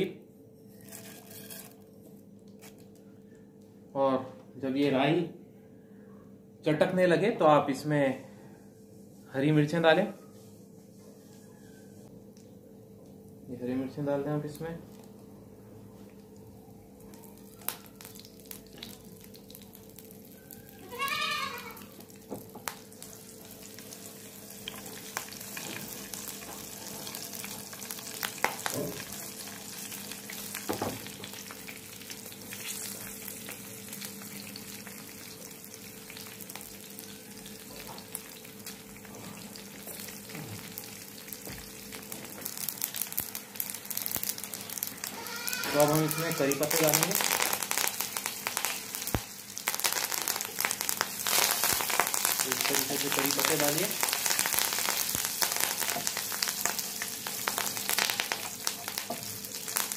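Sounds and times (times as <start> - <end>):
food sizzling in hot oil: 0.7 - 1.8, 17.3 - 59.9
mustard seeds popping: 42.0 - 59.9.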